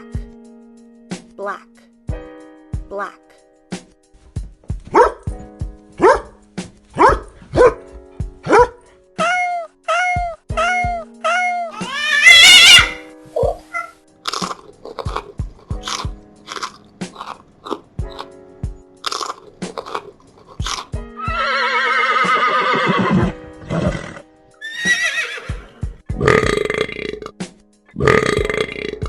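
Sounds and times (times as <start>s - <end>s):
faint background music: 0.0s - 29.0s
animal calling: 9.2s - 14.0s
animal chewing crunchily: 14.3s - 18.3s, 19.0s - 20.9s.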